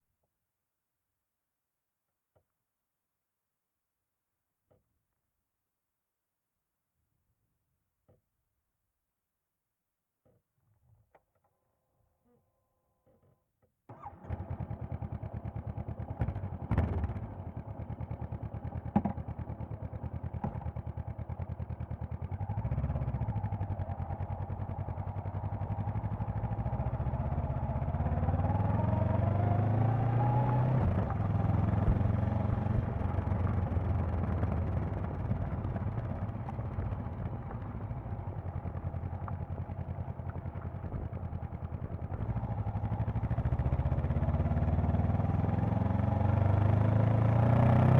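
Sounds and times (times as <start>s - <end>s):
motorcycle engine running: 14.0s - 47.9s.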